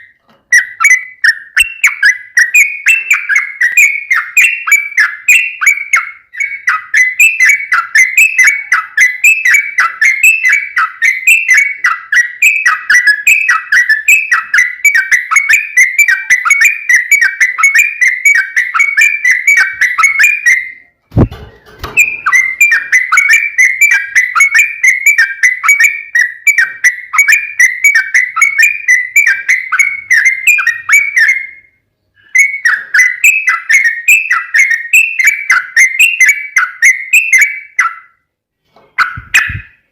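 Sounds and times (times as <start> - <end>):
short thump: 21.1 - 22.2.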